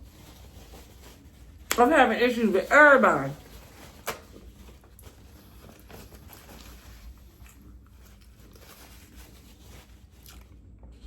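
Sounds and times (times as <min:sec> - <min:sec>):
person chewing: 0:05.6 - 0:08.6, 0:10.1 - 0:11.0.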